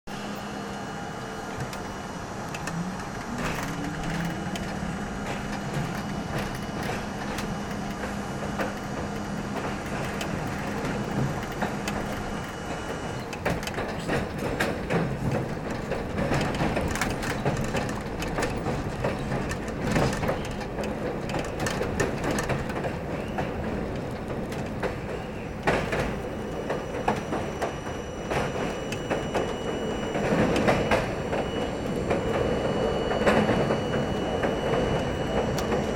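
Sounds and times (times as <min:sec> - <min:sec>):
rising whine: 0:00.1 - 0:13.2, 0:26.2 - 0:35.9
subway car humming: 0:00.1 - 0:35.9
wheels clattering over rail joints: 0:02.6 - 0:35.9.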